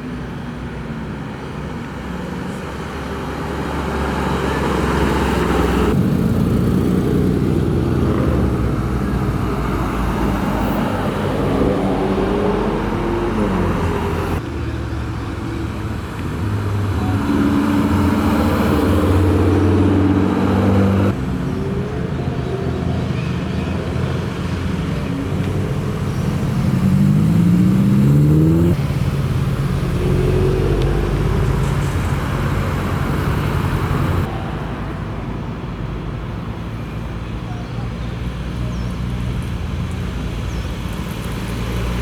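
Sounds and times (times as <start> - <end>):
car engines driving past: 1.8 - 37.4
car engine revving: 4.0 - 14.4, 16.4 - 21.2, 24.7 - 34.3.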